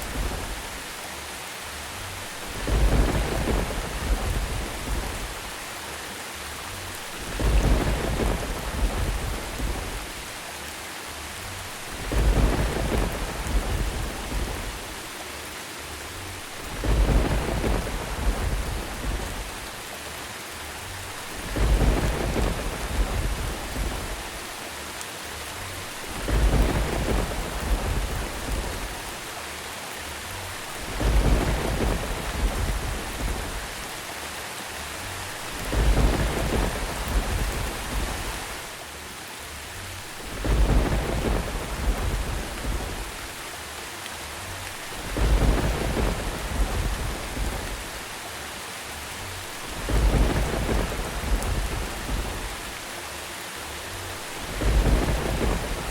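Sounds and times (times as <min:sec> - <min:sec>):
rolling thunder: 0:00.0 - 0:00.8, 0:02.4 - 0:05.6, 0:07.0 - 0:10.3, 0:11.8 - 0:15.0, 0:16.4 - 0:19.8, 0:21.1 - 0:24.4, 0:25.9 - 0:29.2, 0:30.6 - 0:34.0, 0:35.4 - 0:38.7, 0:40.1 - 0:43.4, 0:44.7 - 0:48.2, 0:49.4 - 0:52.8, 0:54.1 - 0:55.9
steady rain hiss: 0:00.0 - 0:55.9.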